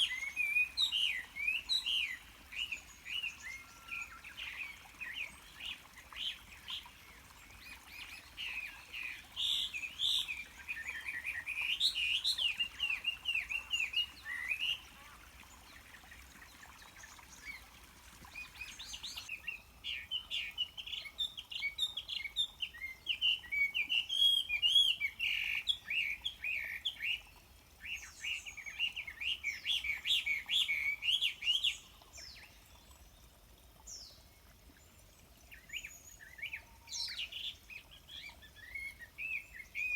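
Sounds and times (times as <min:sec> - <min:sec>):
small birds chirping: 0:00.0 - 0:27.4
flowing river water: 0:00.0 - 0:39.9.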